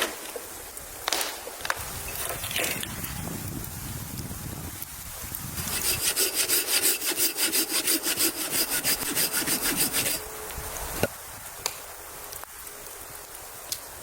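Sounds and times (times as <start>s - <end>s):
hand saw cutting wood: 5.6s - 10.3s.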